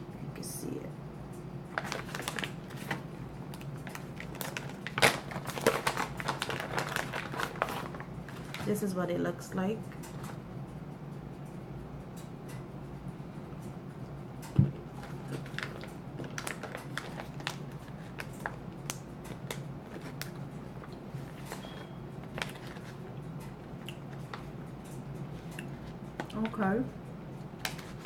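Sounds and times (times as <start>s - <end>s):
small clicks and crackles: 1.7s - 3.0s, 3.6s - 8.8s, 14.4s - 26.6s, 27.6s - 28.0s.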